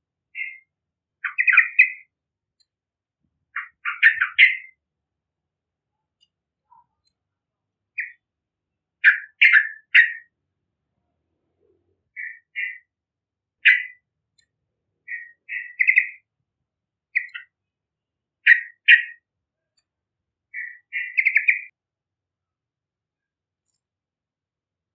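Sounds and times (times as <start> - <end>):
bird singing bubbly phrases: 0.4 - 0.6, 1.2 - 2.1, 3.6 - 4.8, 8.0 - 8.2, 9.0 - 10.3, 12.1 - 12.8, 13.6 - 14.0, 15.0 - 16.2, 17.2 - 17.5, 18.5 - 19.2, 20.6 - 21.7.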